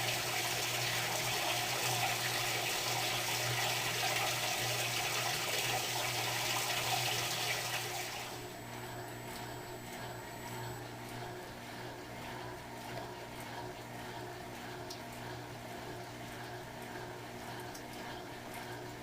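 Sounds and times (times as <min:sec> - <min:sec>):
washing machine motor hum: 0:00.0 - 0:19.0
water rushing through washing machine: 0:00.0 - 0:19.0.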